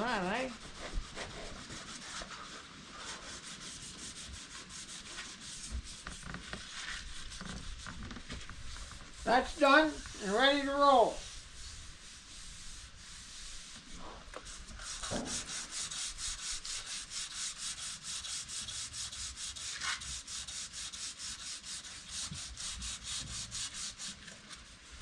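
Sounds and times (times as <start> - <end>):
hand sanding with sandpaper: 0.0 - 25.0.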